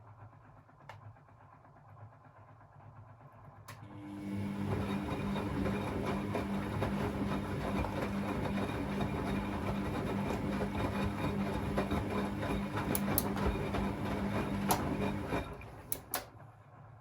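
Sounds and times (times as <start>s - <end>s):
washing machine motor hum: 3.7s - 17.0s.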